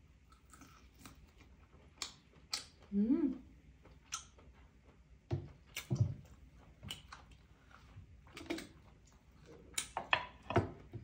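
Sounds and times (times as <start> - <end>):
sharp mouth sounds of chewing: 0.3 - 3.0, 3.8 - 10.0.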